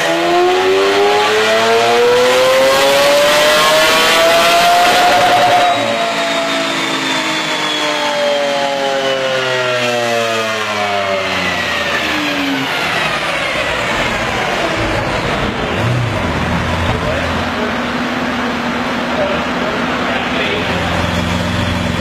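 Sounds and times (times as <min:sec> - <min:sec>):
engine coasting down: 0:11.5 - 0:22.0
engine idling: 0:12.5 - 0:22.0.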